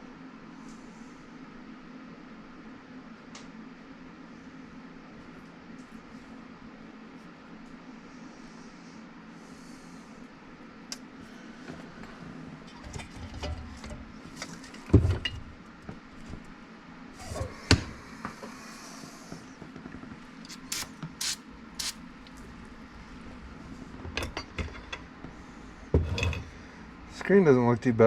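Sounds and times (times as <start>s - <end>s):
brief hisses: 20.5s - 22.0s.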